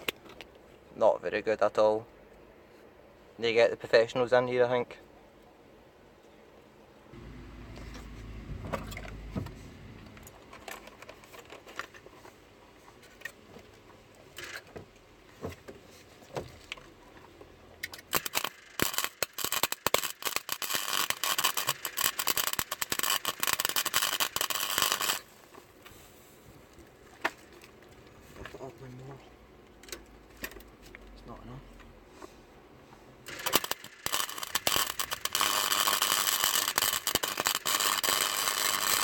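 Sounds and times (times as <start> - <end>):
welding arc crackling: 7.2 - 10.4, 18.0 - 25.4, 33.3 - 39.0.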